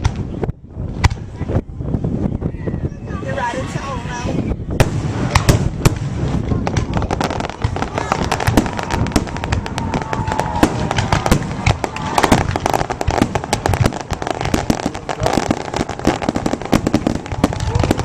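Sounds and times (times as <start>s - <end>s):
fireworks banging and crackling: 0.0s - 2.2s, 4.7s - 18.0s.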